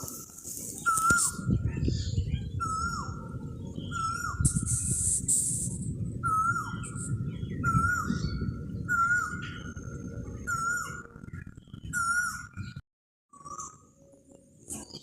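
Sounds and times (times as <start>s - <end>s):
steady low rumble: 0.0s - 12.8s
bird whistled call: 0.8s - 1.5s, 2.6s - 3.2s, 3.8s - 5.6s, 6.2s - 9.8s, 10.4s - 11.1s, 11.9s - 13.9s.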